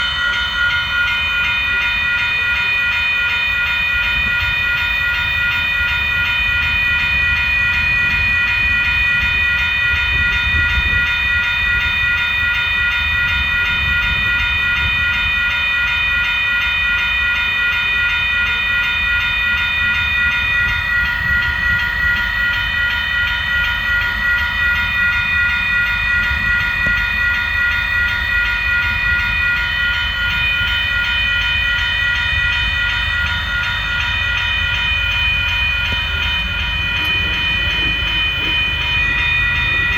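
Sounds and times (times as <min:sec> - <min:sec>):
train rumbling past: 0:00.0 - 0:16.3, 0:17.6 - 0:39.9
steady high ringing tones: 0:00.0 - 0:39.9.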